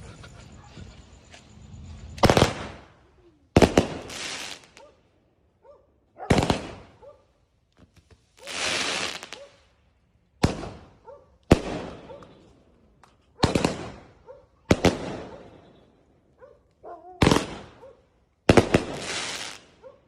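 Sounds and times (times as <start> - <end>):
firecracker hissing burst: 0.0 - 4.9, 8.3 - 9.5, 18.7 - 19.7
firecracker bangs: 0.9 - 3.0, 3.6 - 4.8, 10.4 - 12.2, 17.2 - 17.8, 18.5 - 19.7.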